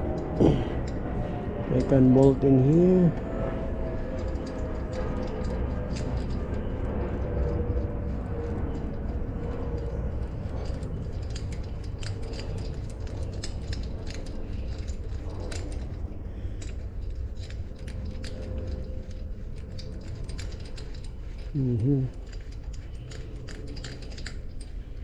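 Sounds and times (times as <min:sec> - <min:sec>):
steady low hum: 0:00.0 - 0:25.0
metallic clicks of bolts and tool: 0:08.7 - 0:25.0.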